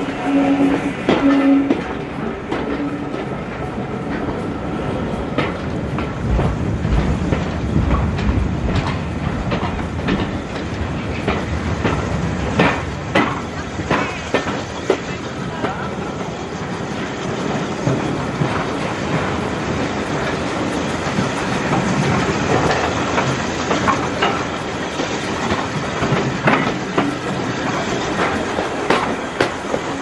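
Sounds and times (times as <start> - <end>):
train carriage rumbling: 0.0 - 30.0
wheels clicking over rail joints: 5.3 - 16.2, 17.4 - 30.0.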